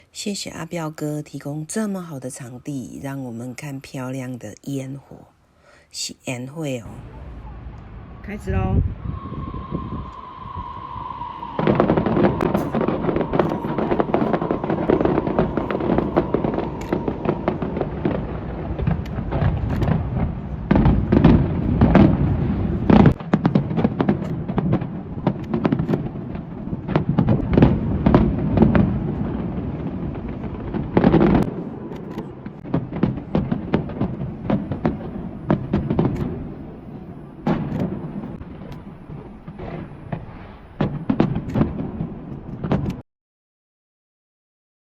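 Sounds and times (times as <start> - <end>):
loud firework bangs: 8.9 - 43.0
fireworks crackling and popping: 9.0 - 43.0.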